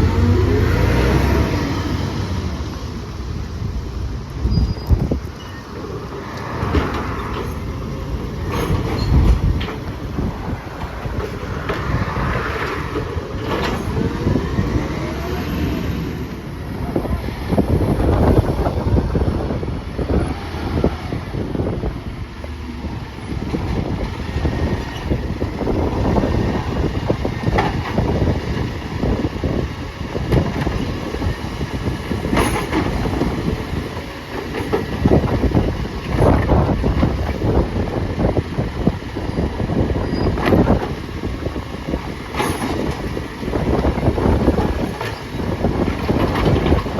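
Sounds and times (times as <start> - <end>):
rising and falling whines: 0.0 - 2.8
garbage truck engine running: 0.0 - 4.3, 21.3 - 46.9
mechanism rumbling and clattering: 6.2 - 15.3, 22.5 - 46.9.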